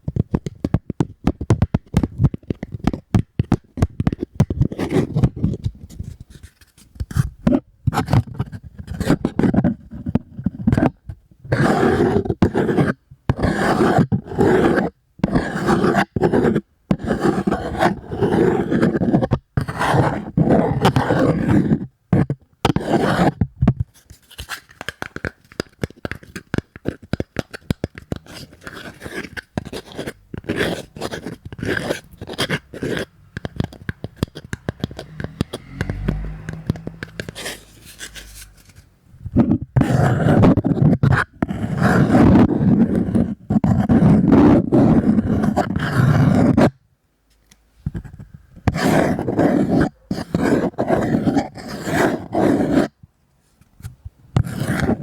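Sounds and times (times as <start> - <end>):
cardboard scratching: 0.1 - 46.8, 47.9 - 53.0, 54.4 - 55.0.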